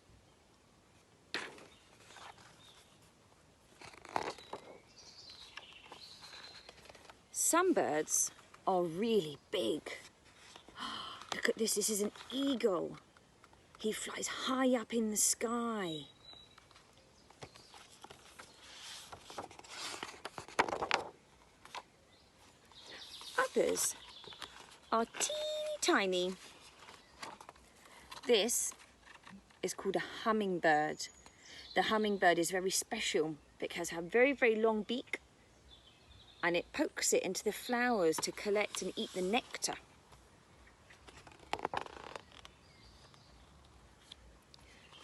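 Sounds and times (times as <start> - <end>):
book pages turning: 1.3 - 3.1, 3.7 - 7.2, 9.8 - 13.8, 16.3 - 29.6, 40.9 - 44.3
faint high bird chirps: 22.1 - 27.2.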